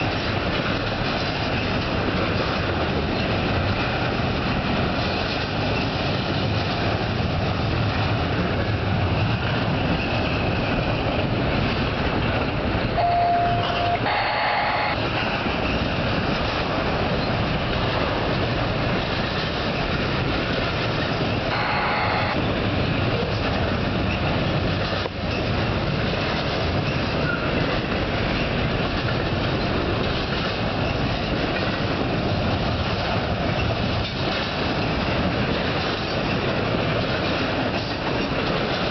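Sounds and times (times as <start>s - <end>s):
freight train wheels rumbling: 0.0s - 38.9s
brief high tones: 13.0s - 15.0s, 21.5s - 22.4s.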